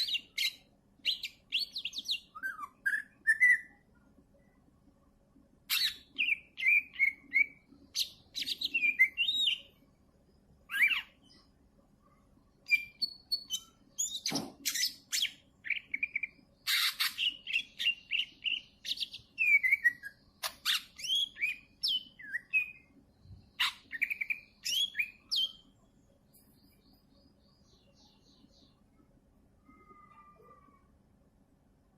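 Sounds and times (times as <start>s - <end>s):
songbird whistling and trilling: 0.0s - 3.8s, 5.7s - 9.7s, 10.7s - 11.3s, 12.6s - 22.9s, 23.6s - 25.6s.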